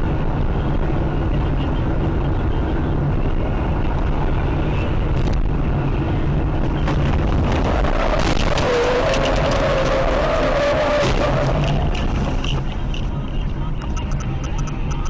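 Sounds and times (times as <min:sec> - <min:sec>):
car engine and road noise: 0:00.0 - 0:15.0
sharp clicks: 0:13.8 - 0:15.0.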